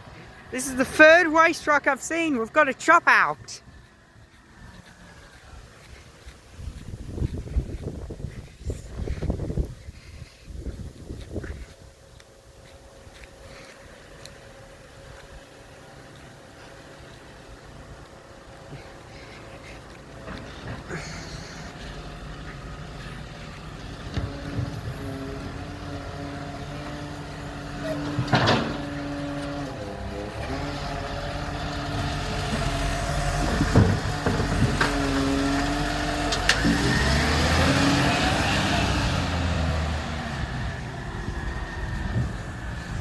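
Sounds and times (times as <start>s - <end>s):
garbage truck engine whine: 15.5s - 43.0s.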